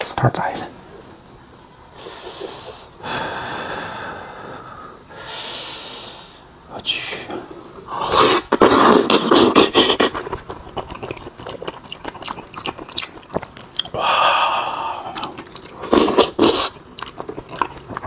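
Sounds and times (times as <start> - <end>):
mouth clicks: 7.8 - 18.0
wet chewing and biting: 8.1 - 14.0, 14.7 - 18.0.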